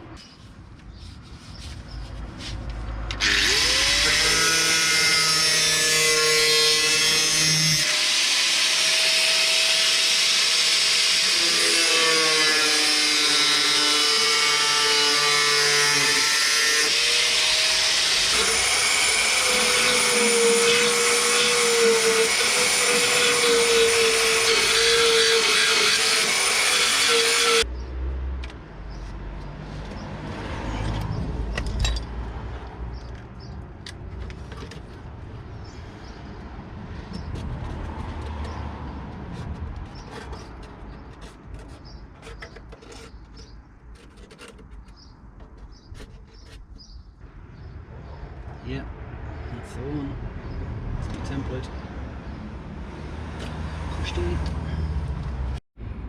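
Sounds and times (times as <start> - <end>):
power tool whining: 3.1 - 27.6
scraping and tapping: 33.0 - 35.1, 37.1 - 47.0.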